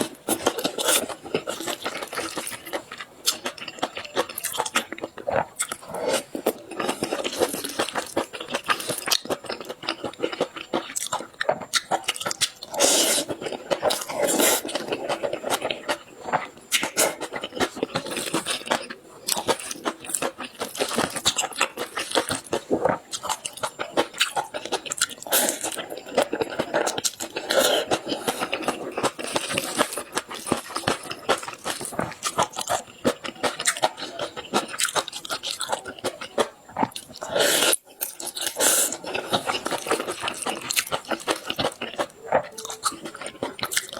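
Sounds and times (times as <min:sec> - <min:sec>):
person chewing crunchy food: 0:00.0 - 0:43.9.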